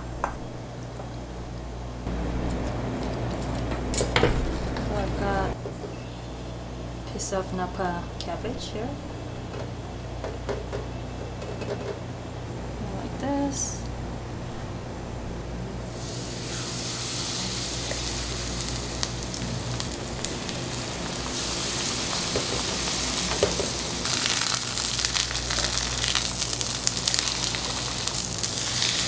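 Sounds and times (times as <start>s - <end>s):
batter frying in oil: 15.9s - 29.0s.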